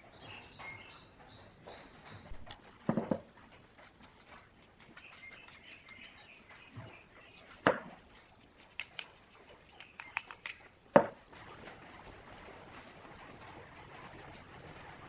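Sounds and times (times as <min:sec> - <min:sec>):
faint chirping: 0:00.0 - 0:02.4, 0:03.9 - 0:10.7
light clicks of hand work: 0:08.6 - 0:10.7
sharp knocks: 0:11.0 - 0:11.2.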